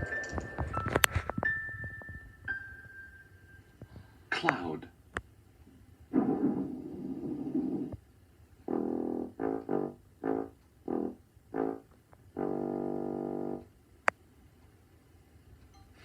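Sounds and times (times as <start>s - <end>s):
noisy rushing sound: 0.0s - 2.6s
brass-like tune: 8.6s - 13.7s.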